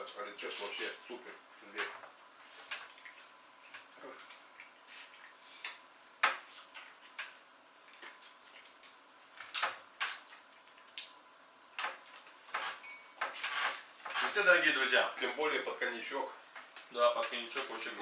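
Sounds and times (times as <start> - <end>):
cutlery and dishes clinking: 12.6 - 13.8.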